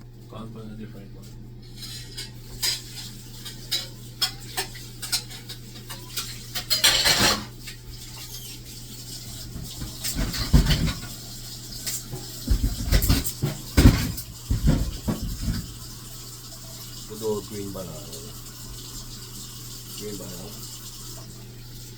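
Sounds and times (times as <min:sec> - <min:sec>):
pots and pans clinking: 0:01.6 - 0:16.1.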